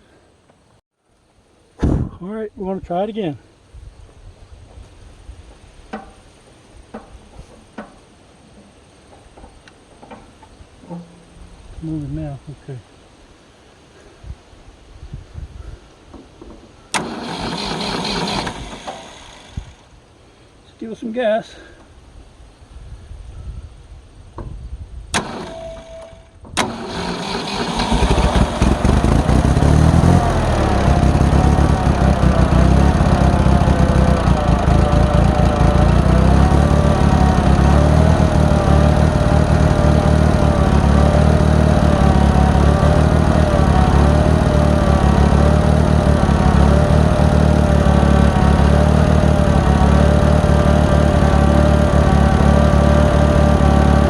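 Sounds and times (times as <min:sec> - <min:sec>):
tractor engine starting and running: 0:09.1 - 0:12.0, 0:16.4 - 0:20.0, 0:25.1 - 0:54.0.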